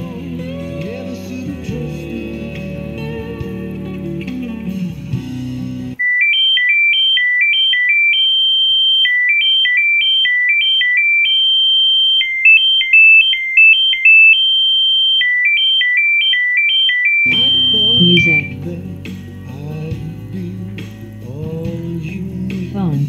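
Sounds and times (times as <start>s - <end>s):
music: 0.0s - 6.0s, 17.3s - 23.0s
electronic phone ringtone: 6.0s - 18.6s.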